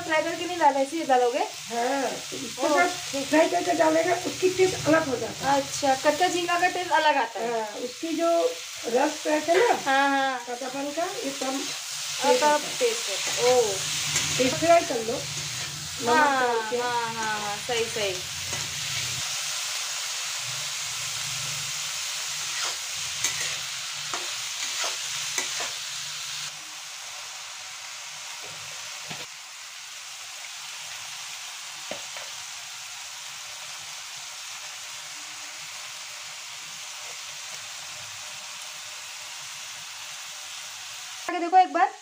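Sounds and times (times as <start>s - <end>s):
shrimp sizzling in oil: 0.0s - 42.0s
spatula scraping a pan: 11.4s - 15.9s, 22.3s - 26.0s.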